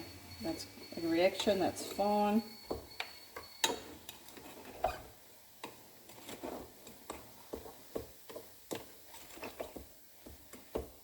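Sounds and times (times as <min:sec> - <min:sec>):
spoon scraping a bowl: 0:01.4 - 0:05.1.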